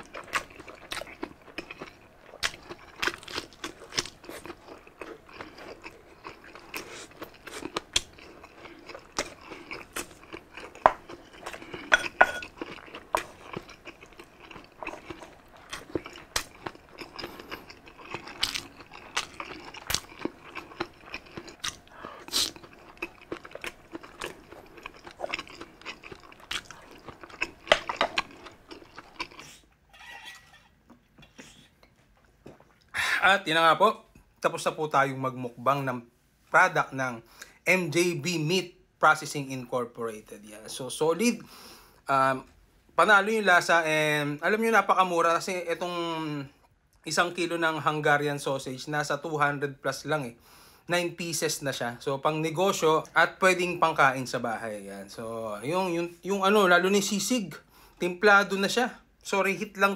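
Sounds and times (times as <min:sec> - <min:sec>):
chewing and crunching: 0:00.0 - 0:30.6.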